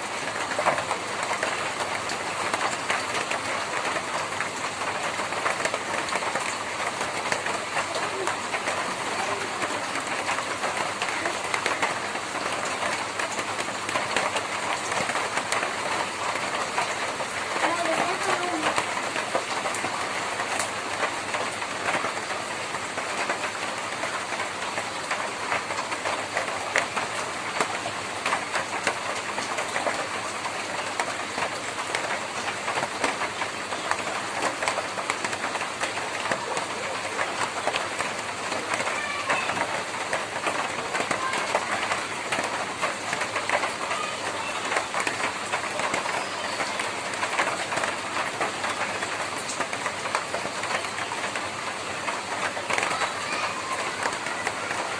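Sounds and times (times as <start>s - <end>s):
heavy rain on a tin roof: 0.0s - 54.9s.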